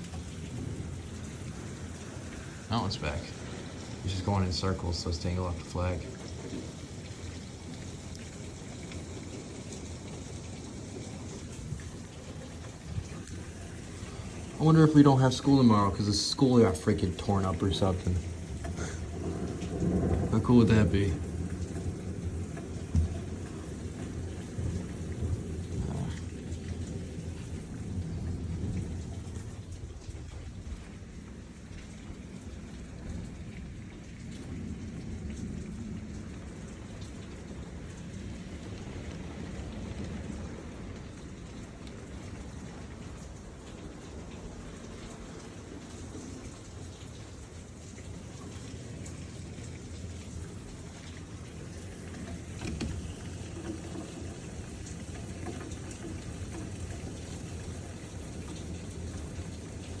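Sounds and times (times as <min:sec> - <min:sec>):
deep thunder rumble: 0:00.0 - 1:00.0
heavy rain pouring: 0:00.0 - 1:00.0
raindrops ticking close by: 0:00.0 - 1:00.0.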